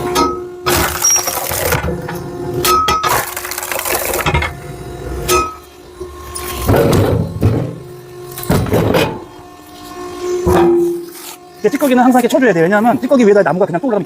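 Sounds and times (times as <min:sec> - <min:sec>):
axe splitting firewood: 0:00.6 - 0:02.0, 0:02.6 - 0:04.6.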